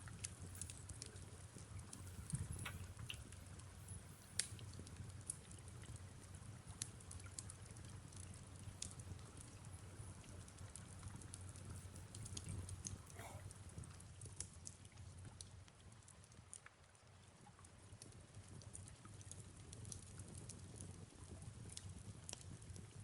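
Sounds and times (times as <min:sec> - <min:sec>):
wood fire crackling: 0:00.0 - 0:15.5.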